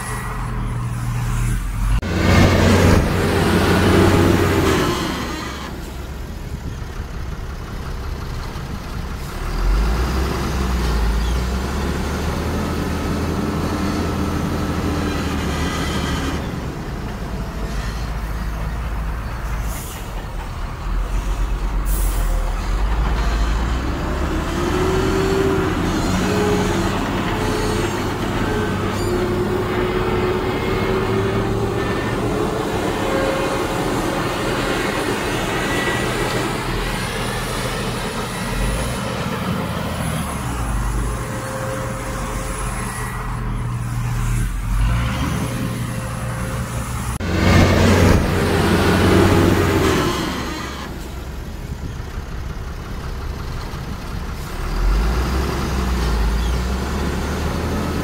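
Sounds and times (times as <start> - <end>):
diesel machinery running under load: 0.0 - 58.0.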